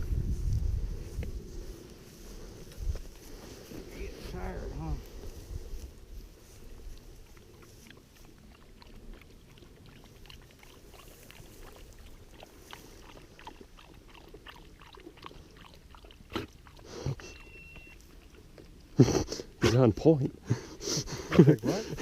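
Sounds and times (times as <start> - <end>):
dog lapping water: 7.0 - 19.0
high beep: 17.2 - 18.0.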